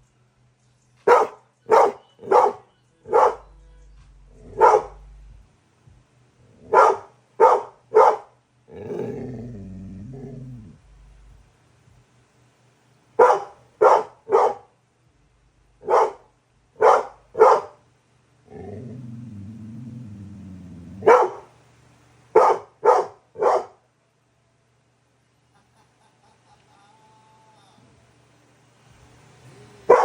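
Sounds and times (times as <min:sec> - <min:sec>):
puppy barking: 0:01.1 - 0:03.5, 0:04.5 - 0:05.0, 0:06.7 - 0:08.4, 0:13.2 - 0:14.7, 0:15.8 - 0:17.8, 0:21.0 - 0:21.5, 0:22.4 - 0:23.8
dog growling: 0:06.4 - 0:11.3, 0:18.5 - 0:21.5.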